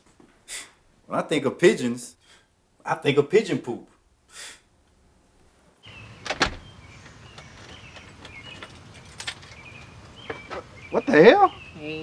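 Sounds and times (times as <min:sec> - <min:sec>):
high bird chirps: 0:05.9 - 0:12.0.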